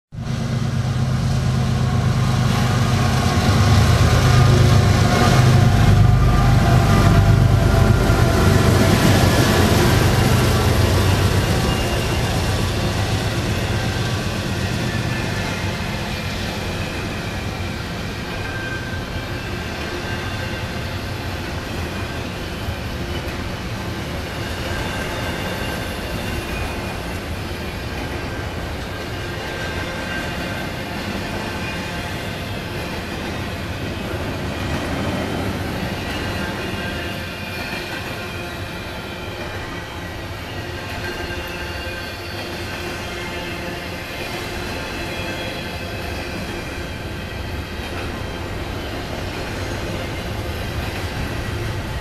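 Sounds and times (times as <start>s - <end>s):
diesel locomotive engine drone: 0.1s - 52.0s
train cars rumbling on rails: 0.1s - 52.0s.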